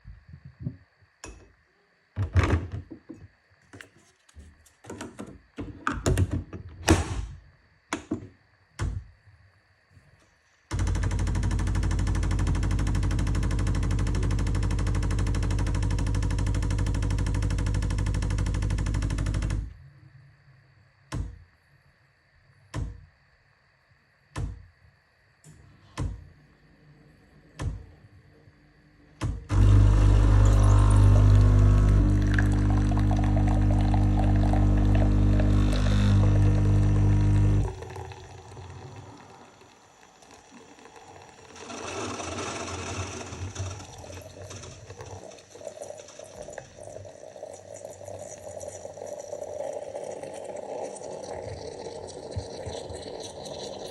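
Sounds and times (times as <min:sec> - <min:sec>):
coffee machine mechanical buzz: 0:10.7 - 0:19.8, 0:29.2 - 0:53.9.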